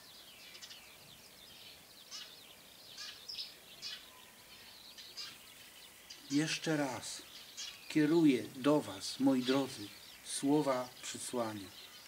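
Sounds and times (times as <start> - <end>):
faint outdoor hiss: 0.0 - 12.0
small songbirds chirping: 0.0 - 12.0.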